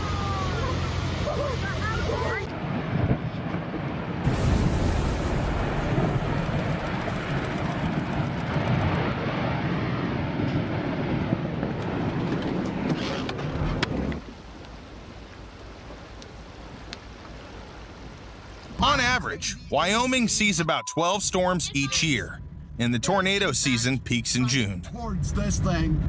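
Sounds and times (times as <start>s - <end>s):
floodwater rushing: 0.0s - 2.6s, 4.2s - 9.0s, 14.2s - 20.7s.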